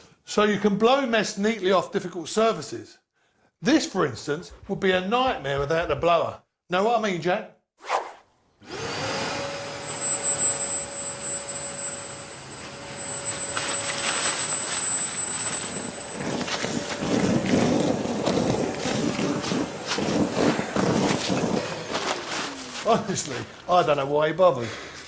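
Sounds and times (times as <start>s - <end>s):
vacuum blower running: 8.6s - 24.2s.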